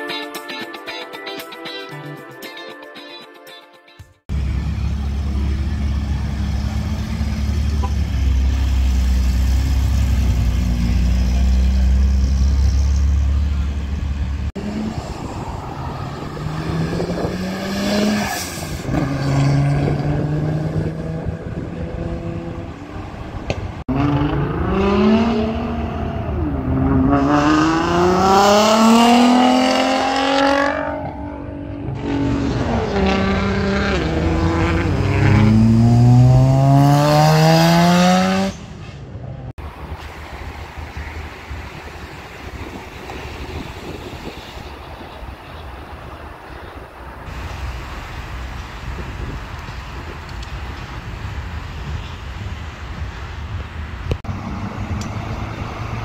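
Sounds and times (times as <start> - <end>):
car engines accelerating hard: 4.3 - 38.7, 54.1 - 56.0.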